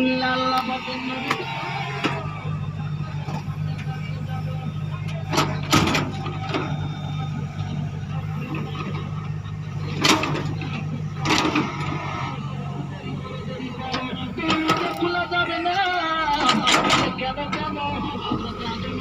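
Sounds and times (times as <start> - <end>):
tractor engine humming: 0.0 - 19.0.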